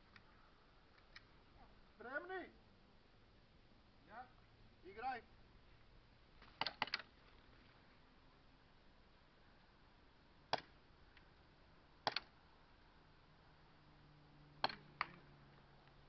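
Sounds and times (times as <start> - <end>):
airsoft gun pops: 6.4 - 7.1.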